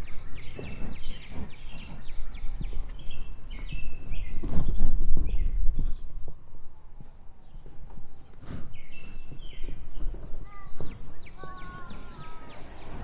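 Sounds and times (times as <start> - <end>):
birds whistling phrases: 8.1 - 13.0
sharp rich bird call: 11.3 - 13.0.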